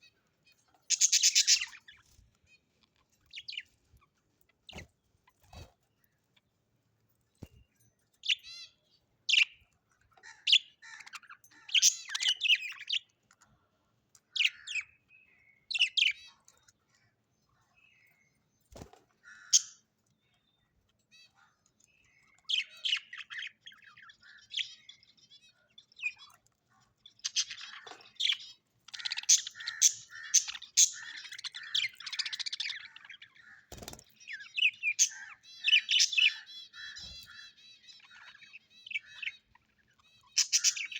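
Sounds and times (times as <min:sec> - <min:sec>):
small parrots chirping: 0:00.0 - 0:03.8, 0:08.2 - 0:13.2, 0:14.2 - 0:17.1, 0:22.0 - 0:40.9.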